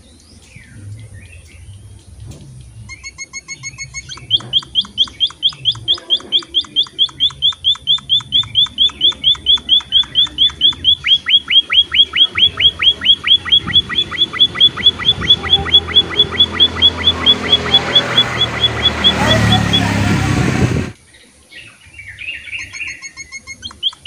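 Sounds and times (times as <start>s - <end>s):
pulsing pitched bird note: 2.9s - 21.0s
finch calling short high notes: 3.6s - 20.4s.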